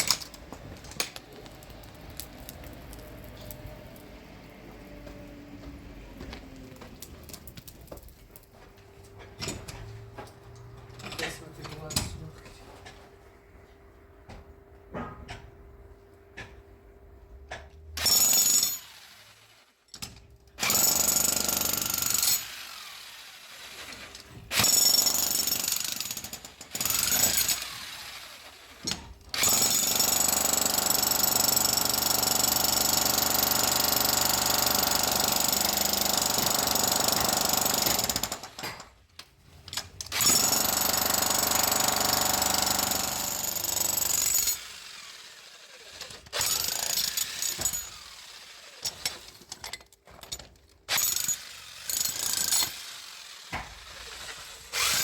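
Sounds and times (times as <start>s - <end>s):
power tool grinding masonry: 40.1s - 49.4s, 50.9s - 55.0s.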